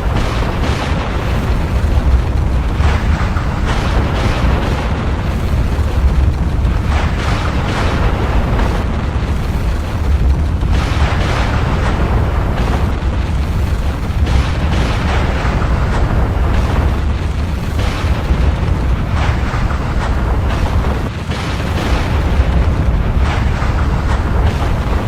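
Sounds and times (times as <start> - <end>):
deep volcanic rumble: 0.0 - 25.0
volcanic blasts: 0.0 - 25.0.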